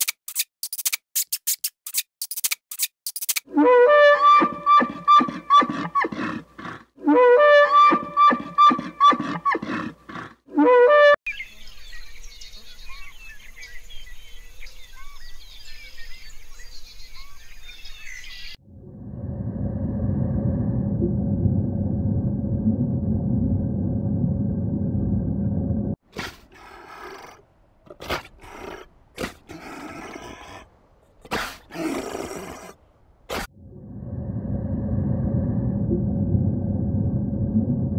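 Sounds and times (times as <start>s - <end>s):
elk bugling: 3.7s - 10.9s.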